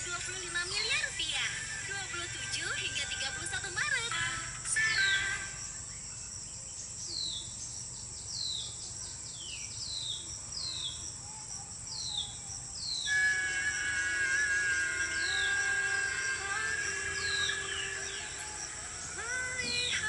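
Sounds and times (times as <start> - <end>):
high insect drone: 0.0 - 20.0
bird whistling downward notes: 11.9 - 20.0.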